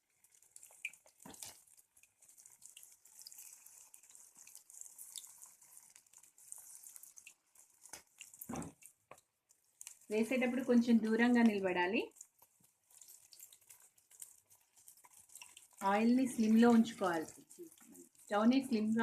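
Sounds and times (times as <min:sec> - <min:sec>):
okra sizzling in hot oil: 0:00.0 - 0:19.0.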